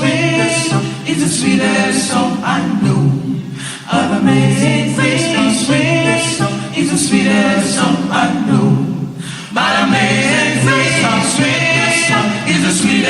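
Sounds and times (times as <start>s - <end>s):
choir singing unaccompanied: 0.0s - 13.0s.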